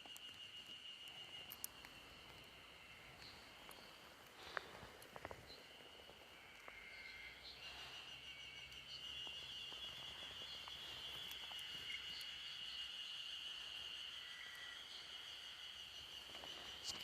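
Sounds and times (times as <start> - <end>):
faint clicks: 0.0 - 7.1
cicadas droning: 0.0 - 17.0.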